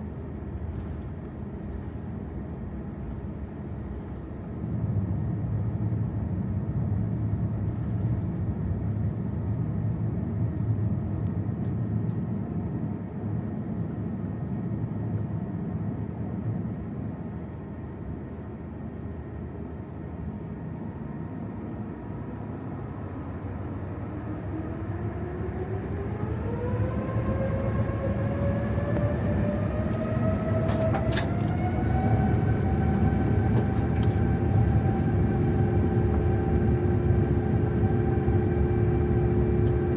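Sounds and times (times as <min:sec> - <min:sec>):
aircraft engines rumbling and whining: 0:00.0 - 0:39.9.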